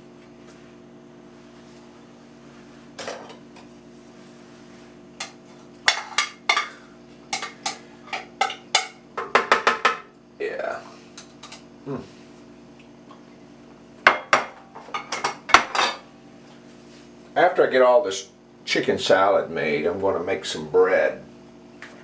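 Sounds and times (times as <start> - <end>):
metal utensil knocking on dish: 8.4 - 10.1.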